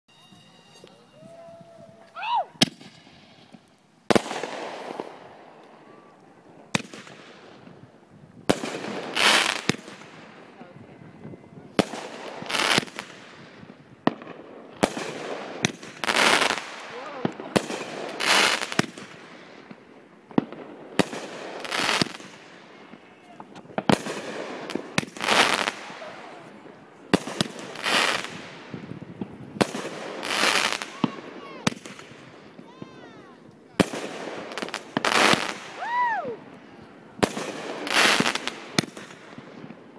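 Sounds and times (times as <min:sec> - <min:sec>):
firework crackling hiss: 0:00.2 - 0:06.0, 0:14.8 - 0:19.8, 0:21.0 - 0:26.4
firework bangs: 0:02.6 - 0:05.9, 0:06.6 - 0:10.5, 0:11.7 - 0:36.2, 0:37.0 - 0:39.9.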